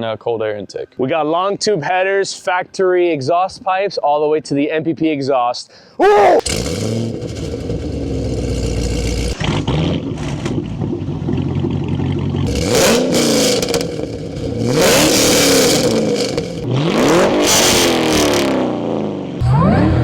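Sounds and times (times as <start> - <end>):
car engine idling and revving: 6.4 - 20.0.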